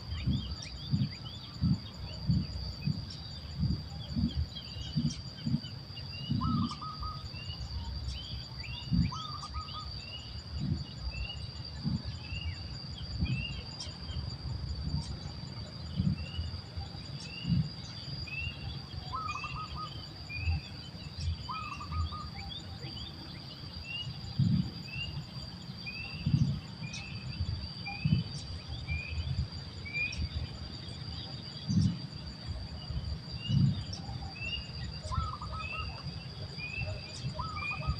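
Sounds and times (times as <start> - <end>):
insect drone: 0.0 - 37.9
bird chirping: 0.1 - 37.9
low dull thumps: 0.2 - 6.7.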